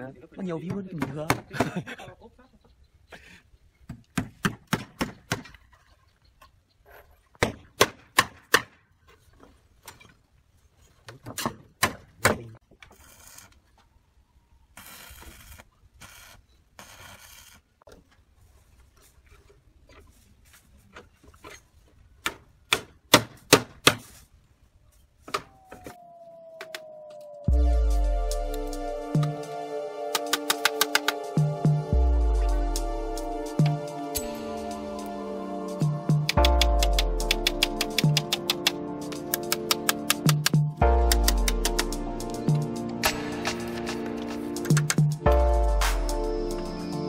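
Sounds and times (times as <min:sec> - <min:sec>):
hammer strikes: 0:35.8 - 0:46.2.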